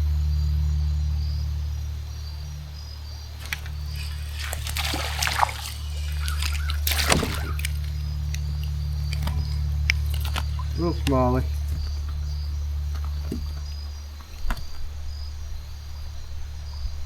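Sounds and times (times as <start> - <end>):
steady low rumble: 0.0 - 17.0
water splashing beside a kayak: 3.2 - 16.8.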